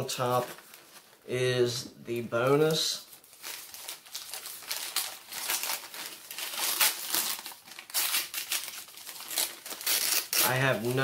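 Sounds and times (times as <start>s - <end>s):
paper wrapping crinkling and tearing: 2.4s - 11.0s.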